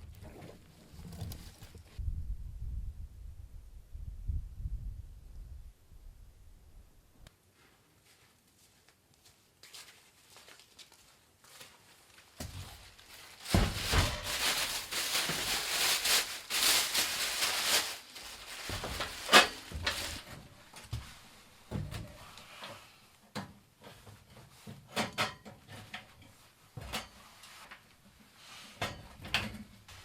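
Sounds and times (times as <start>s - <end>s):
rustling and scraping: 0.0s - 2.0s, 7.5s - 23.1s, 23.8s - 30.0s.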